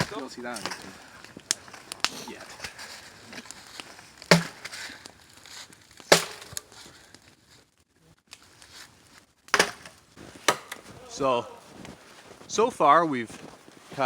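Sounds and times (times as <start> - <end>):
axe chopping wood: 4.3 - 5.0, 6.1 - 6.6, 9.5 - 10.9.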